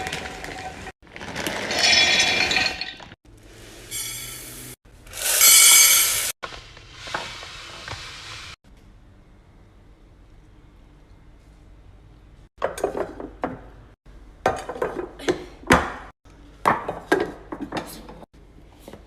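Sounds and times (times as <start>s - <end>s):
glass jars clinking and rattling: 1.4s - 3.2s.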